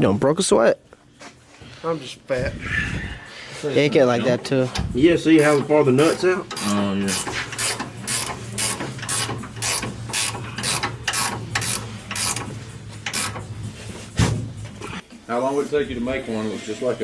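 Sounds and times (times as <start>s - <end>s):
ratchet wrench clicking: 5.4s - 13.5s.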